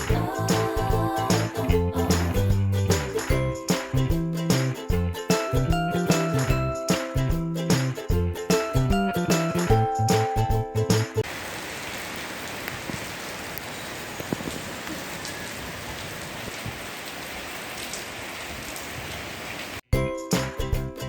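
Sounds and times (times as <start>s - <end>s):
jingly background music: 0.0s - 11.2s, 20.0s - 21.0s
steady rain falling: 11.2s - 19.8s.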